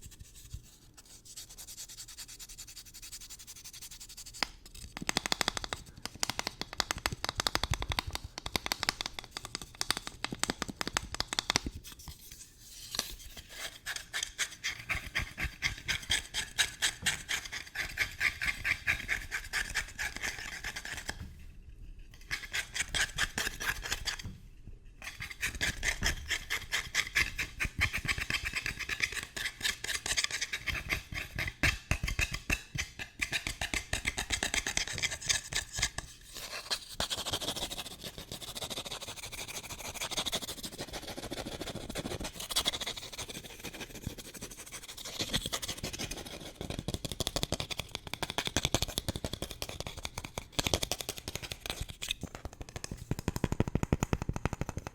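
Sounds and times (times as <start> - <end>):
fast scratching and tapping: 4.4 - 11.7, 25.1 - 54.9.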